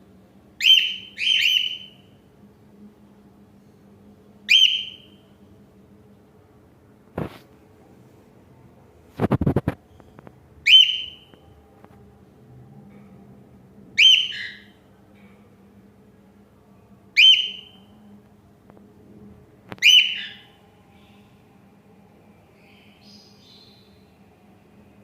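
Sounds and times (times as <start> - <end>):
cockatiel calling: 0.6 - 2.0, 4.5 - 5.1, 10.6 - 11.3, 14.0 - 14.7, 17.2 - 17.7, 19.8 - 20.5
cockatiel chirping: 0.6 - 2.0, 4.5 - 5.1, 10.7 - 11.3, 14.0 - 14.7, 17.2 - 17.7, 19.8 - 20.5.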